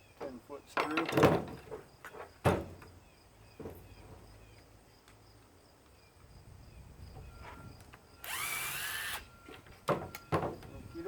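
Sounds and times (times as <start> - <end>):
power drill whining: 8.2 - 9.3.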